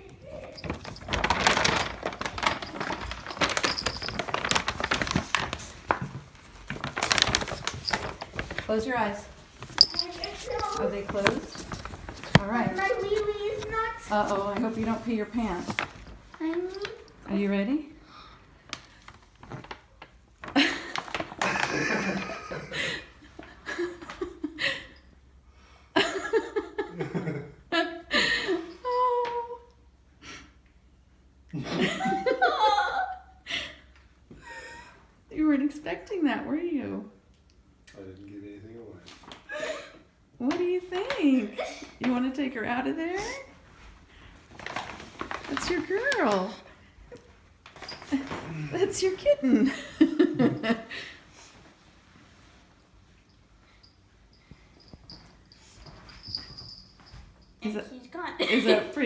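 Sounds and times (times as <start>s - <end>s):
rapid clicking and rustling: 0.3s - 17.1s.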